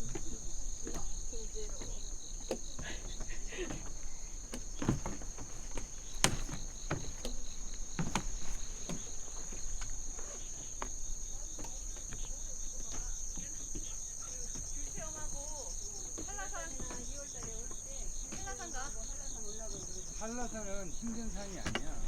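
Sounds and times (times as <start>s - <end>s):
footsteps: 0.0s - 14.0s, 14.6s - 22.0s
crickets trilling: 0.0s - 22.0s
short knocks: 19.6s - 22.0s.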